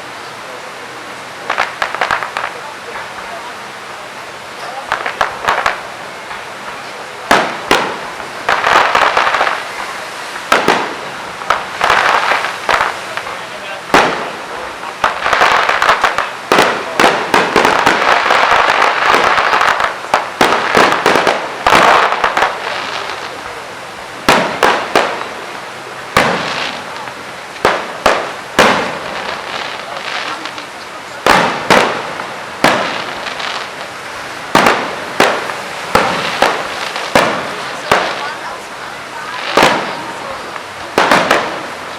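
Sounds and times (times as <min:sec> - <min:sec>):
firework crackling: 0:00.0 - 0:41.9
firework shells bursting: 0:04.6 - 0:23.5, 0:24.2 - 0:38.4, 0:39.3 - 0:41.9
firework shell bursts: 0:31.2 - 0:33.8.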